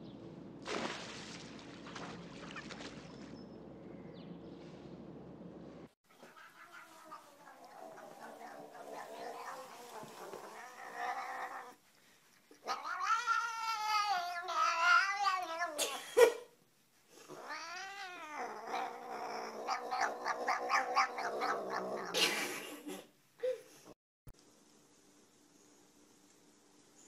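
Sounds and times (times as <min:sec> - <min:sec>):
cat yowling: 0:06.2 - 0:11.8, 0:12.6 - 0:16.0, 0:17.4 - 0:22.2.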